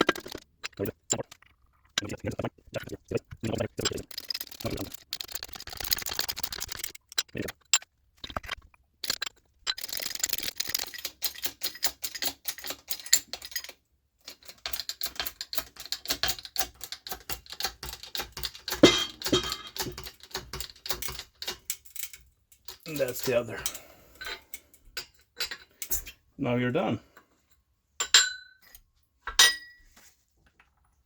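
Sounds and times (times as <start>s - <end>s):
metallic clicking of gears: 0.0s - 0.8s, 3.6s - 24.5s.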